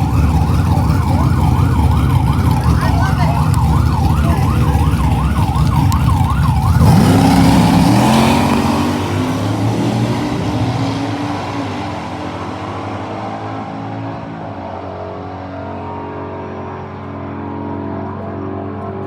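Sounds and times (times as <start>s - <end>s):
police siren wavering: 0.0s - 11.0s
car engine revving: 0.0s - 19.0s.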